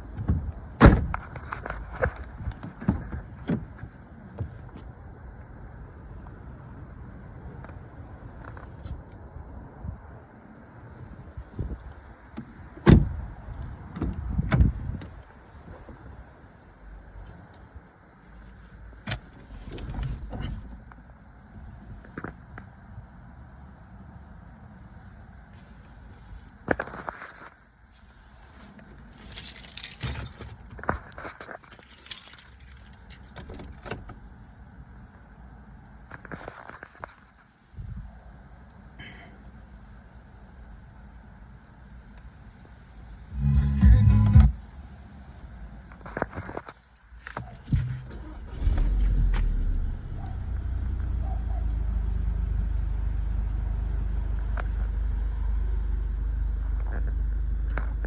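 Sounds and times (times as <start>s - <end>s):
keys jangling: 29.0s - 30.7s, 31.6s - 34.0s, 47.2s - 49.8s
car engine starting and idling: 38.7s - 46.6s, 47.3s - 58.0s.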